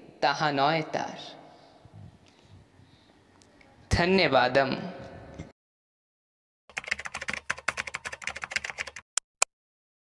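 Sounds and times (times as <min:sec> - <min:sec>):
rapid keyboard typing clicks: 0:06.7 - 0:09.1.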